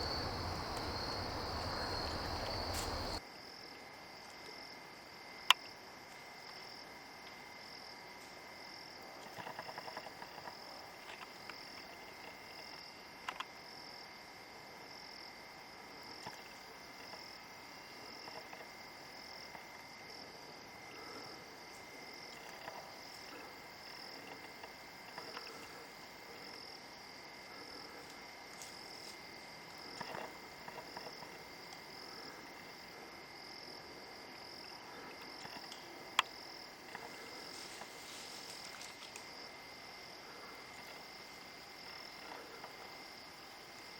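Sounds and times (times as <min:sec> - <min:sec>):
insects pulsing drone: 0:00.0 - 0:03.2, 0:06.4 - 0:43.9
thin steady tone: 0:00.0 - 0:03.2.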